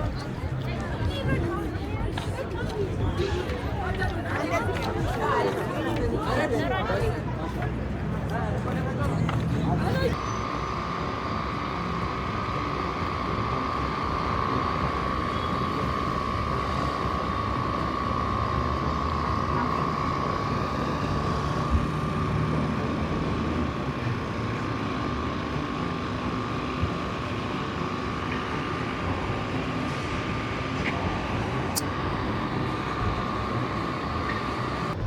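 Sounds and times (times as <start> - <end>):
machine running with high whine: 8.2 - 35.0.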